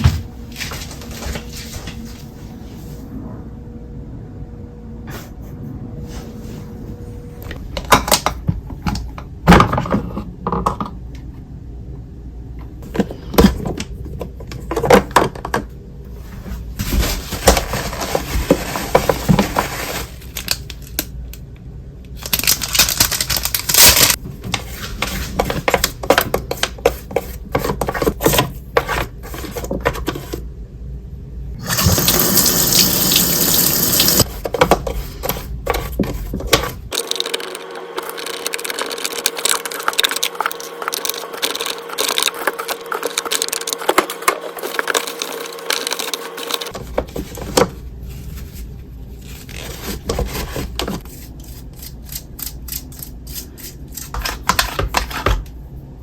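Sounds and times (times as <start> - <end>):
water running from tap: 31.6 - 34.2.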